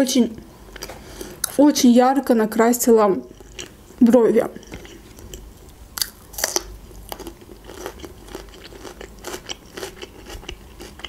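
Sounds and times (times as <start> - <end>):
crunching of raw bell pepper: 6.0 - 11.0.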